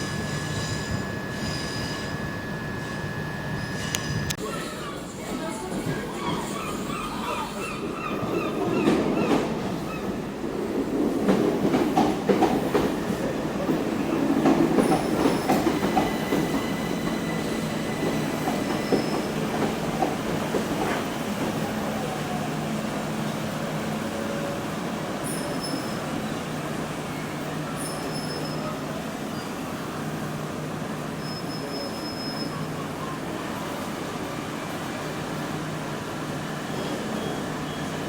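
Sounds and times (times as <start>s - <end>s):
wheel squeals: 0.0s - 5.1s, 14.8s - 19.8s, 25.2s - 26.3s, 27.5s - 29.7s, 31.1s - 33.4s, 36.6s - 38.0s
train wheels clicking on rails: 5.2s - 21.9s.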